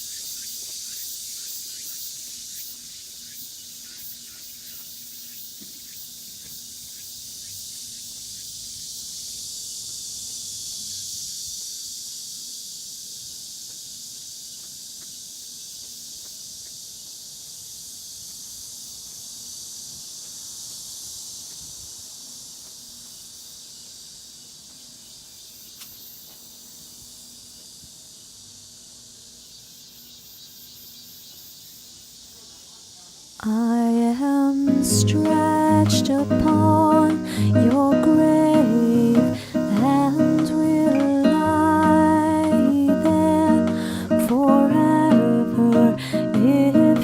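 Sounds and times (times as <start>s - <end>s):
high-pitched insect chorus: 0.0s - 47.0s.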